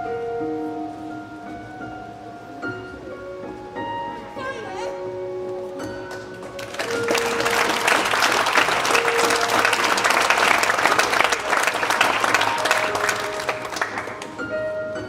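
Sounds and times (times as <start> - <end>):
background music: 0.0 - 15.0
audience clapping: 6.1 - 14.4.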